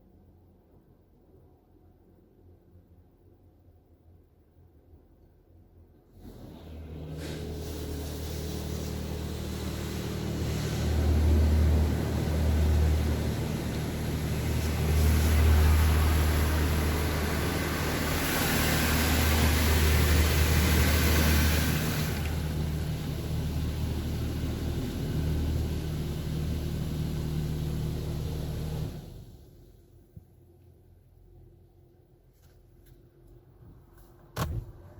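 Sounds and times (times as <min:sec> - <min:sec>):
machine low hum: 0:04.6 - 0:32.2
car wash spraying water: 0:06.2 - 0:29.5.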